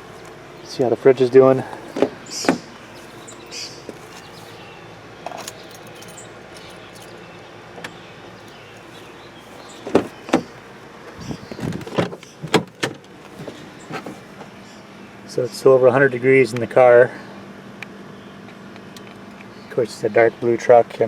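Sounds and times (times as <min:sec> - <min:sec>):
clicks and knocks of handling: 0:01.7 - 0:03.3.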